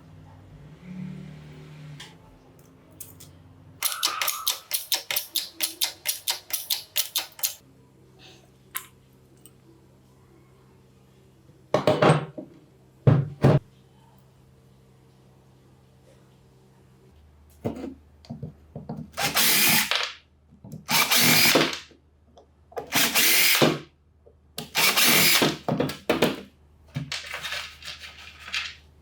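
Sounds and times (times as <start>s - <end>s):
sharp metal tool clicks: 3.8s - 7.6s.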